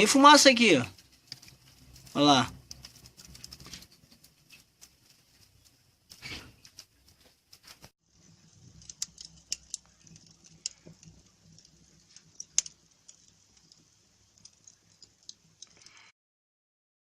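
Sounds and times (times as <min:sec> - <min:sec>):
cardboard burning with crackles: 0:00.0 - 0:16.1.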